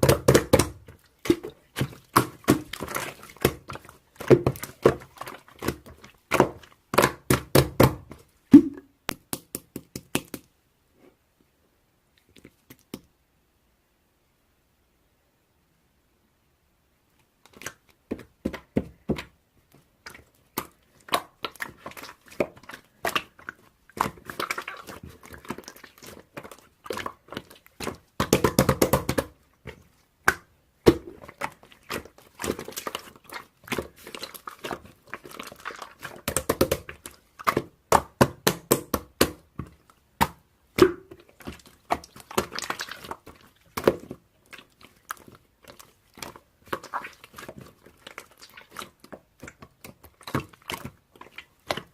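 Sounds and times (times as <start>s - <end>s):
close-up clicks taps and crackles: 9.1s - 10.5s, 12.2s - 13.1s.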